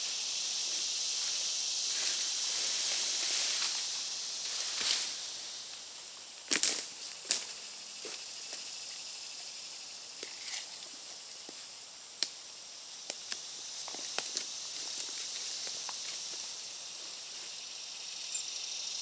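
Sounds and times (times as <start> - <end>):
high insect chorus: 0.0 - 19.0
twigs snapping underfoot: 13.1 - 16.1.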